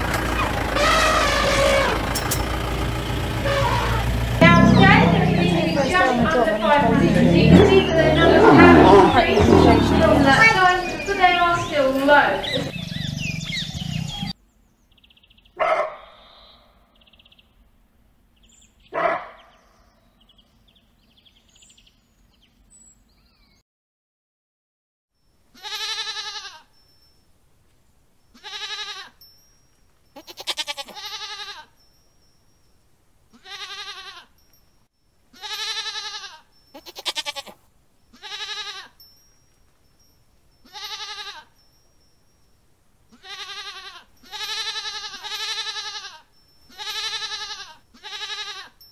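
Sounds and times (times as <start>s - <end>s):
sharp animal calls: 0.0s - 14.4s
sheep and goats bleating: 0.3s - 2.3s, 3.4s - 14.3s, 25.5s - 26.7s, 28.3s - 29.3s, 30.2s - 31.8s, 33.3s - 34.4s, 35.3s - 39.0s, 40.6s - 41.6s, 43.1s - 48.9s.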